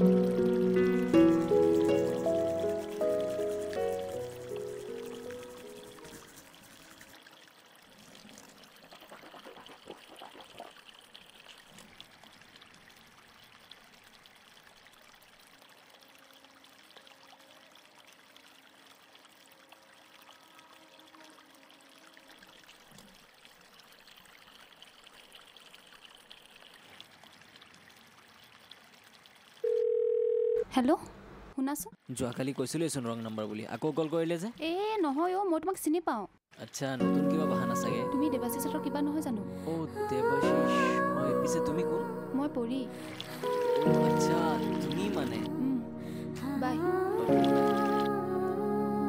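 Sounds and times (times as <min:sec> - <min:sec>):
stream trickling over rocks: 0:00.0 - 0:30.6, 0:32.0 - 0:35.3, 0:36.5 - 0:48.3.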